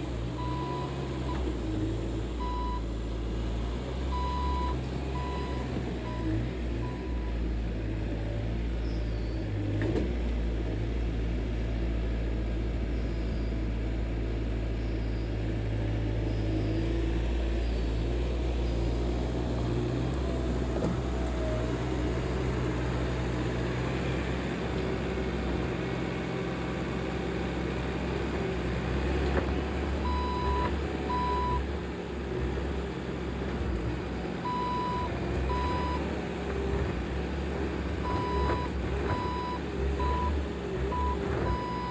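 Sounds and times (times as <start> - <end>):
diesel engine droning: 0.0 - 41.9
backup alarm beeping: 40.9 - 41.9.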